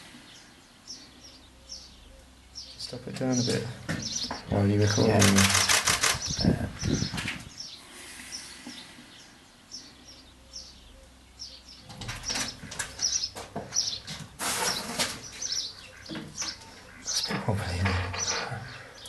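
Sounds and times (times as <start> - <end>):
small birds chirping: 0.0 - 19.0
rustling on microphone: 4.0 - 7.7.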